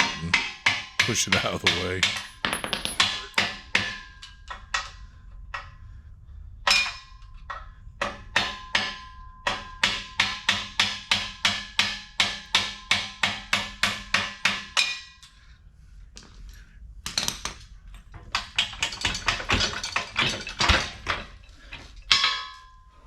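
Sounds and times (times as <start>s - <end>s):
hammer striking steel: 8.0s - 15.2s.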